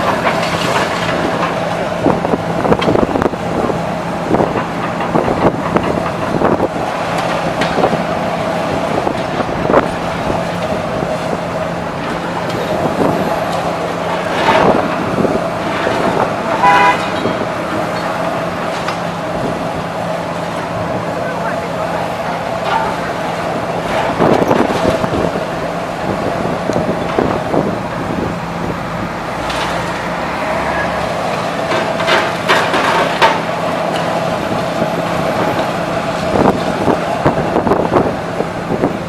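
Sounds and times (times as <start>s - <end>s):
demolition machine engine drone: 0.0s - 39.0s
horn-like tone: 16.6s - 17.3s.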